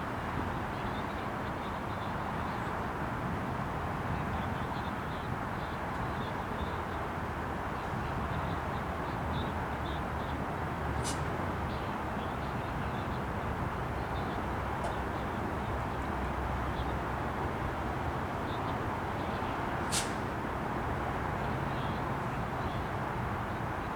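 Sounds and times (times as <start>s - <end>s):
sharp click: 19.9s - 20.2s.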